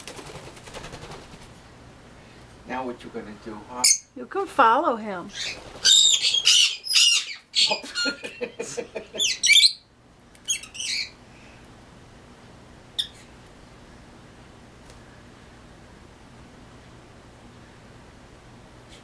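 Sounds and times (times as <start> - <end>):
parrots squawking: 5.3 - 8.2, 9.2 - 9.9, 10.5 - 11.2.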